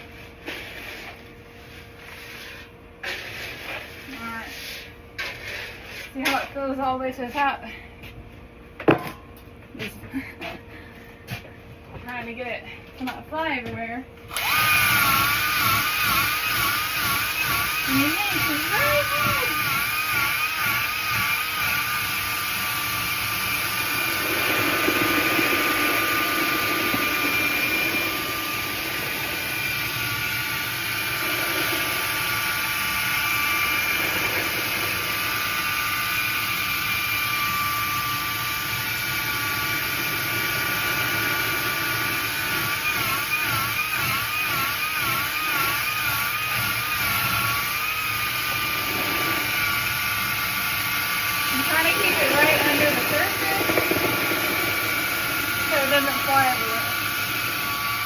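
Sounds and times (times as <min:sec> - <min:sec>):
electric drill mixer whining: 0:14.3 - 0:58.0.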